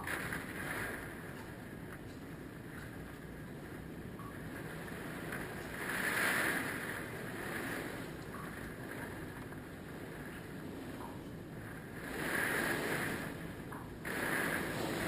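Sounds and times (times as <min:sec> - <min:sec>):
choppy water rushing: 0:00.0 - 0:15.0
strong gusting wind: 0:00.0 - 0:15.0.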